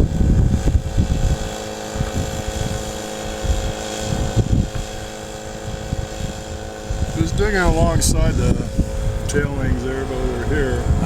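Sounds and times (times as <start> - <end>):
small gasoline engine running: 0.0 - 11.0
wind gusting on microphone: 0.0 - 11.0.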